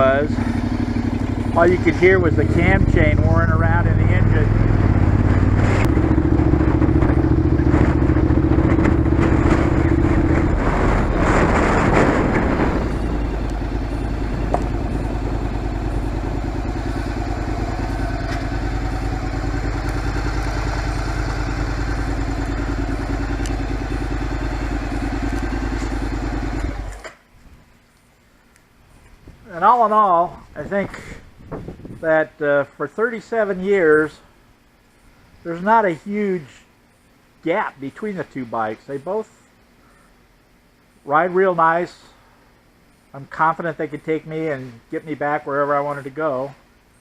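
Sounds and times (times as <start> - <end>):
motorcycle engine running: 0.0 - 27.2.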